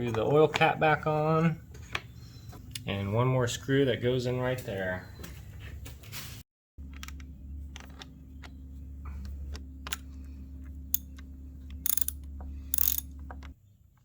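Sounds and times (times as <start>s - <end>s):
low hum: 6.8s - 13.7s
scraping clicks: 9.2s - 14.0s
ratchet clicking: 11.8s - 13.5s.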